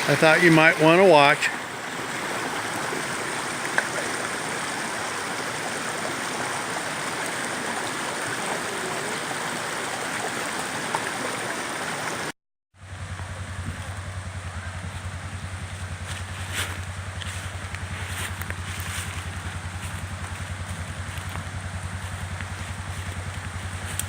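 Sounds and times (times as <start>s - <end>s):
creek rushing: 0.0s - 12.3s, 12.9s - 24.0s
vehicle engine idling: 12.8s - 24.0s.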